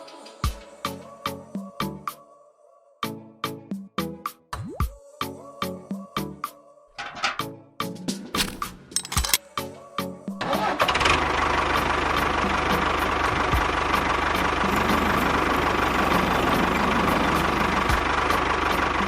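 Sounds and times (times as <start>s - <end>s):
engine idling with whine: 10.7s - 19.0s.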